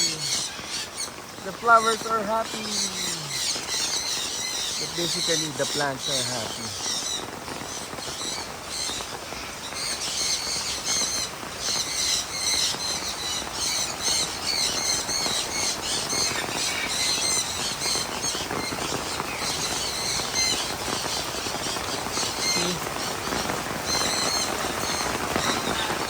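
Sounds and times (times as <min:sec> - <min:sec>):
birds squawking: 0:00.0 - 0:26.0
heavy rain hiss: 0:00.0 - 0:26.0.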